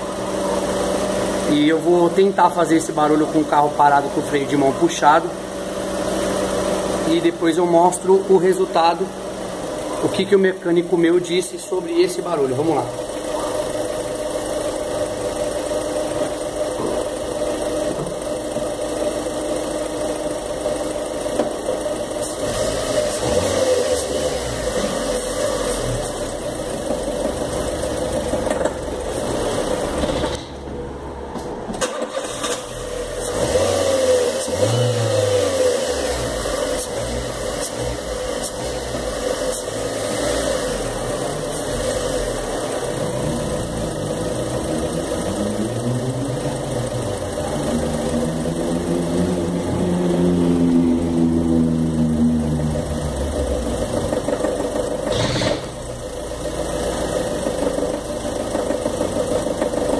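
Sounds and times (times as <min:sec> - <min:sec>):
car engine running under load: 0:00.0 - 0:59.9.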